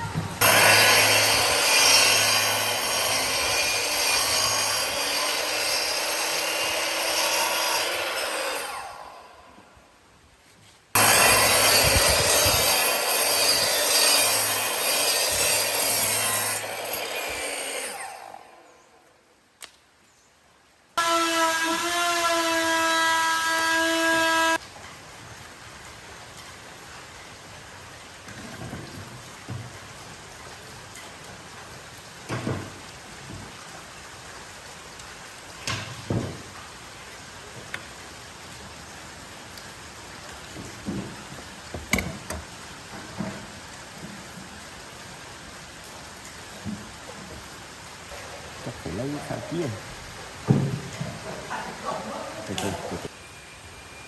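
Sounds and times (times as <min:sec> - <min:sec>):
electric power tool on wood: 0:00.4 - 0:09.5, 0:11.0 - 0:18.8, 0:21.0 - 0:24.6.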